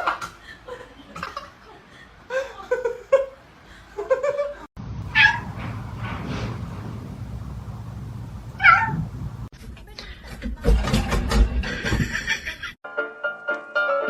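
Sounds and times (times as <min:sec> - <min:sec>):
steady low hum: 0:04.8 - 0:09.5
cats meowing: 0:05.1 - 0:05.5, 0:08.6 - 0:09.1.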